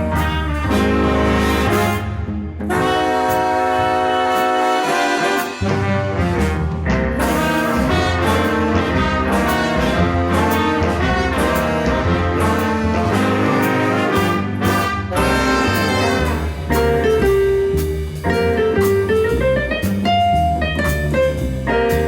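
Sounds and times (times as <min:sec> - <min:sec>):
trombones and trumpets: 0:00.0 - 0:17.1
bass and drums: 0:00.0 - 0:22.0
jazz band playing: 0:00.0 - 0:22.0.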